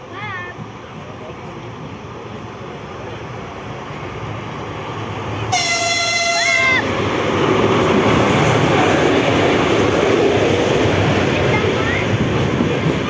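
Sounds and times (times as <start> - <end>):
train rumble: 0.0 - 13.0
train horn: 5.5 - 6.9.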